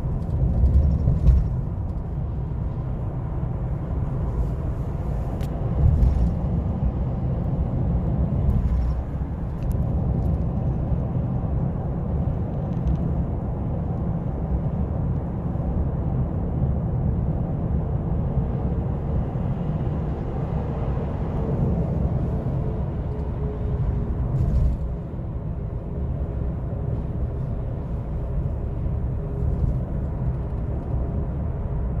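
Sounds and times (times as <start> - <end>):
truck engine and tyres rumbling: 0.0 - 32.0.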